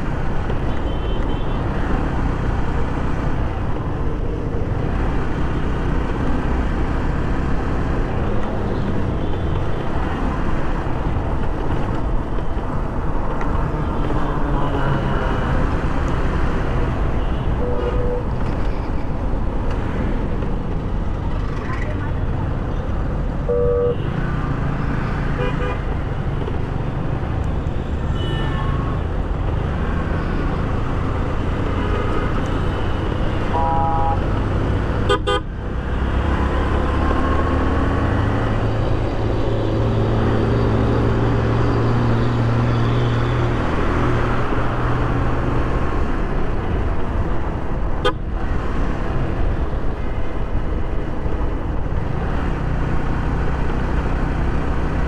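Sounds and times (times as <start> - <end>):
wind and engine rumble: 0.0 - 55.0
vehicle horn toots: 17.2 - 18.4, 23.5 - 24.2, 33.5 - 34.3, 35.1 - 35.5.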